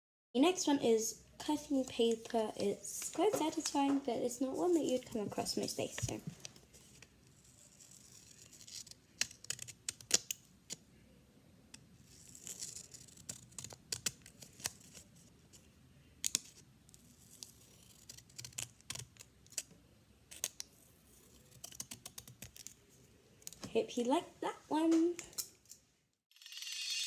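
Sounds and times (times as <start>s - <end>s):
paper rustling: 1.8s - 9.7s
scissors snipping paper: 6.8s - 10.8s, 12.1s - 15.1s, 16.2s - 19.7s, 20.3s - 22.8s.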